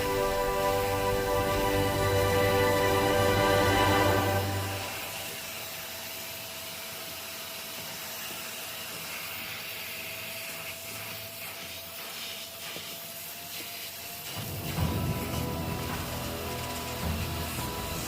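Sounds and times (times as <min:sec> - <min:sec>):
thin even whine: 0:00.0 - 0:05.8
cleaning machine hissing: 0:00.0 - 0:18.0.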